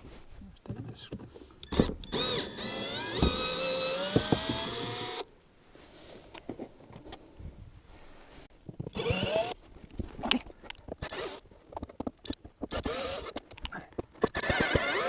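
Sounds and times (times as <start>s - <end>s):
sharp clicks and knocks: 1.6s - 5.2s, 10.6s - 15.0s.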